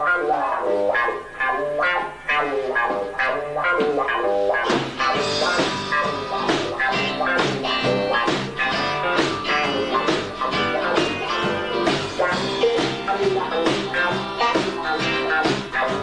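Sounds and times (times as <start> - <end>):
bass guitar: 0.0 - 16.0
electric guitars: 0.0 - 16.0
drums and cymbals: 2.1 - 16.0.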